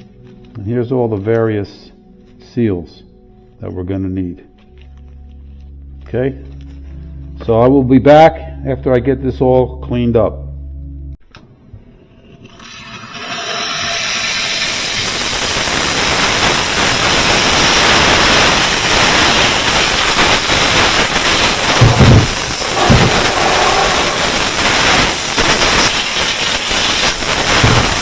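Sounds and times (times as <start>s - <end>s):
spray hissing: 13.4s - 28.0s.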